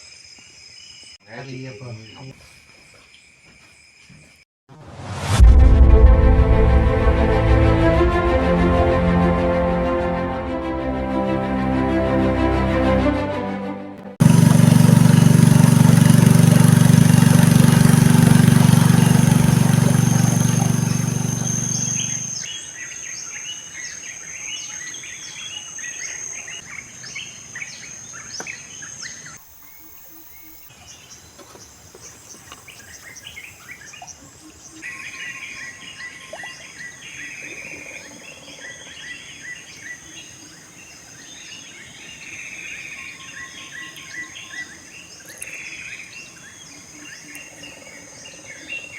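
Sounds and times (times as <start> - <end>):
loud low hum: 4.9 - 11.2, 14.0 - 22.5
birds chirping: 14.2 - 48.9
high insect drone: 14.6 - 22.5.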